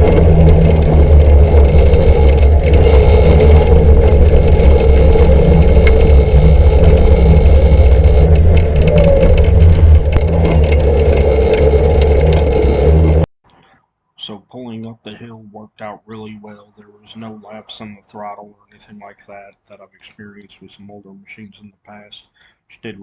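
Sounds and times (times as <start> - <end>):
quad bike engine under load: 0.0 - 13.3.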